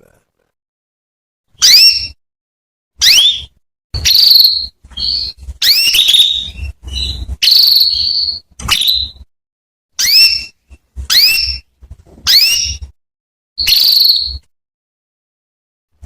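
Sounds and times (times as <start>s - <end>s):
canary chirping: 1.6s - 2.2s, 3.0s - 9.3s, 10.0s - 13.0s, 13.6s - 14.5s.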